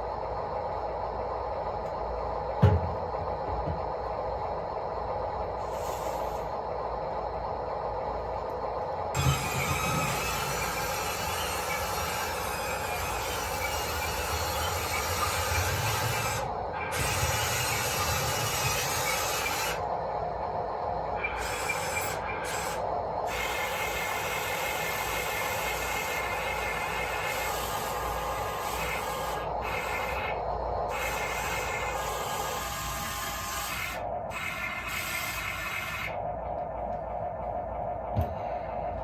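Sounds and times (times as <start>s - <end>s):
electric motor whine: 9.1s - 19.9s, 21.2s - 36.2s.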